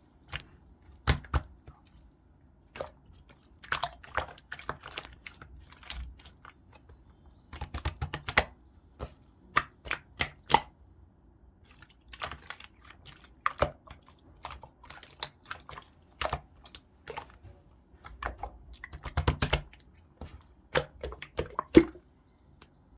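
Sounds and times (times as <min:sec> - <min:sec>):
slime clicking and popping: 0:00.3 - 0:01.6, 0:07.5 - 0:10.7, 0:18.0 - 0:19.8.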